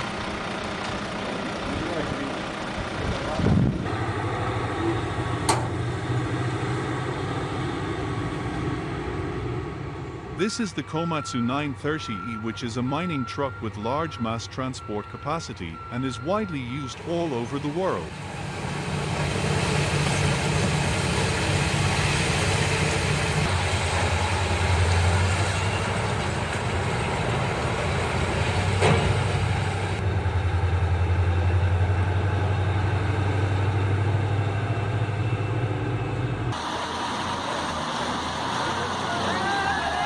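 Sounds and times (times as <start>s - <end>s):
large diesel engine throbbing: 0.0s - 40.0s
sharp click: 5.5s - 5.8s.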